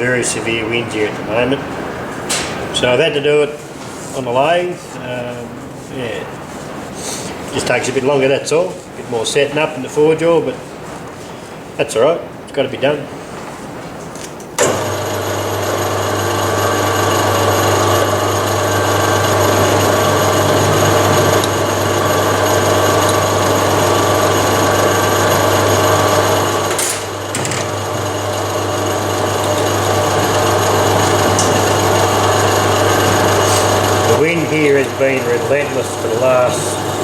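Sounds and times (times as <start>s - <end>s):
metal lathe drilling: 14.6s - 37.0s.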